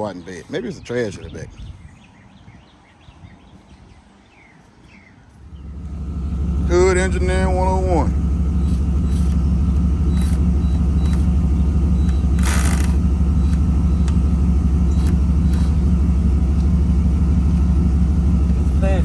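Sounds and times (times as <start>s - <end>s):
pickup engine rumbling: 5.3s - 19.0s.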